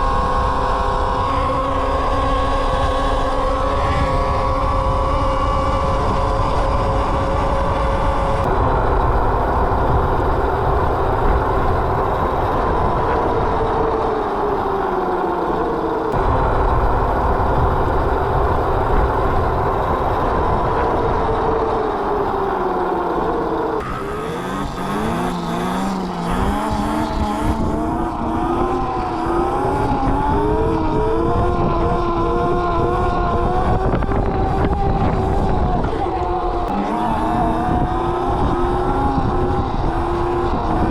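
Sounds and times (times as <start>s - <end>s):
wind rumble on microphone: 0.0s - 15.0s, 26.3s - 40.9s
electric motor whining: 0.0s - 40.9s.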